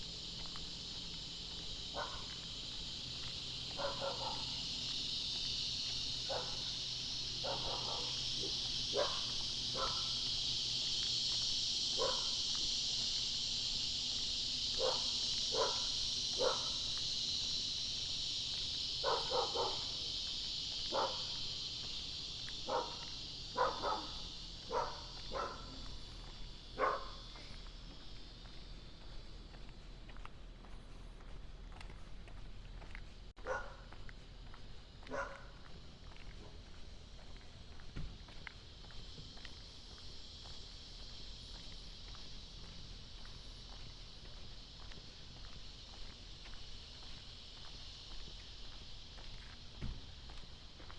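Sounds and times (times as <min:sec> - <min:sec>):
insects droning: 0:00.0 - 0:50.9
dog barking: 0:01.9 - 0:02.3, 0:03.8 - 0:04.5, 0:06.3 - 0:06.7, 0:07.4 - 0:10.2, 0:12.0 - 0:12.4, 0:14.8 - 0:16.8, 0:19.0 - 0:20.0, 0:20.9 - 0:21.4, 0:22.6 - 0:25.8, 0:26.8 - 0:27.2, 0:33.4 - 0:33.9, 0:35.1 - 0:35.6.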